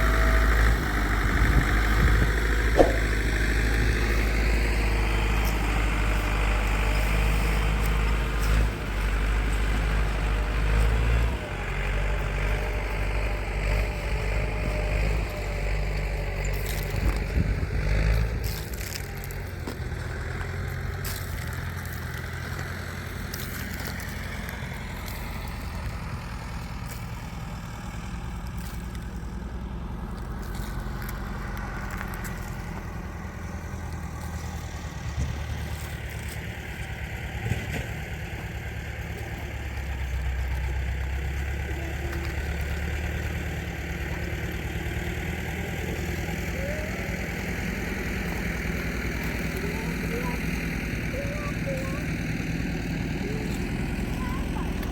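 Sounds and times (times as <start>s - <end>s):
engine running at low speed: 0.0s - 54.9s
short knocks: 2.7s - 3.4s.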